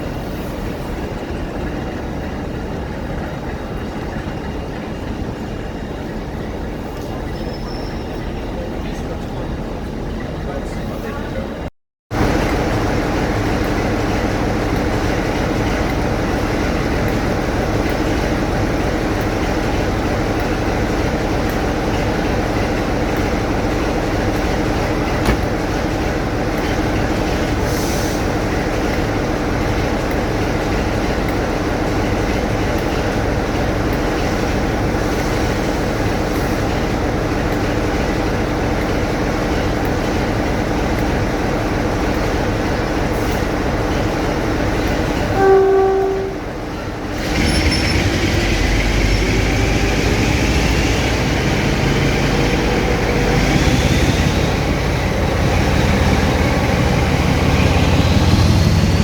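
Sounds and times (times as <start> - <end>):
train droning hum: 0.0 - 59.0.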